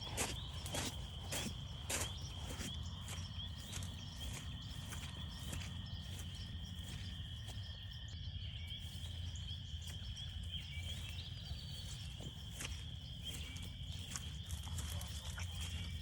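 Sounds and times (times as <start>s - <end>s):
frogs calling: 0.0s - 16.0s.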